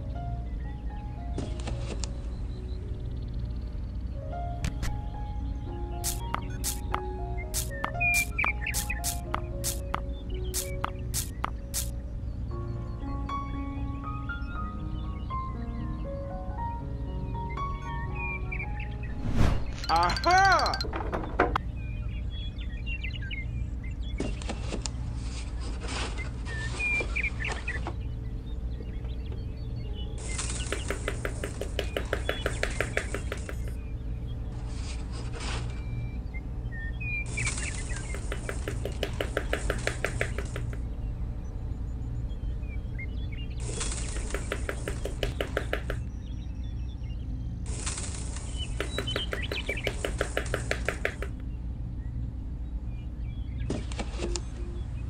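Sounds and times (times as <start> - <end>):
small birds chirping: 0.0 - 20.9, 21.6 - 55.0
faint bird chirps: 0.1 - 20.8
rapid tapping clicks: 6.0 - 11.9, 30.5 - 33.8, 38.0 - 40.9, 44.0 - 46.1, 48.6 - 51.4.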